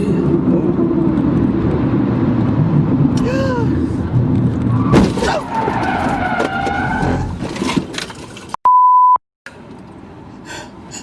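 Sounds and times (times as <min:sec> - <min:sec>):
censor bleep: 0:08.6 - 0:09.2.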